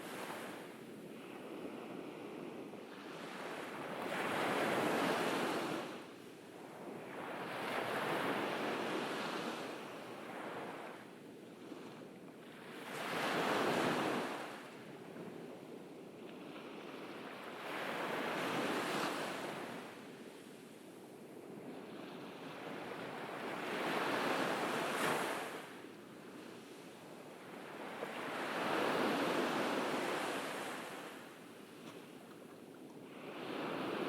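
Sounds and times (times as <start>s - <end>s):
ocean waves washing onto beach: 22.0s - 26.4s, 27.0s - 34.0s.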